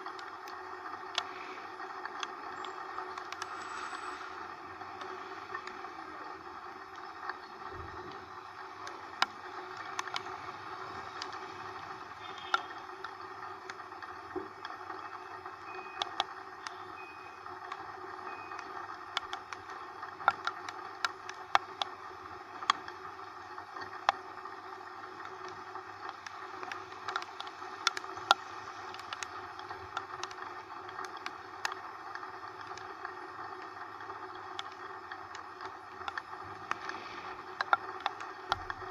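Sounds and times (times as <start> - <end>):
rain ticks: 0.0 - 38.9
wet road noise: 0.0 - 38.9.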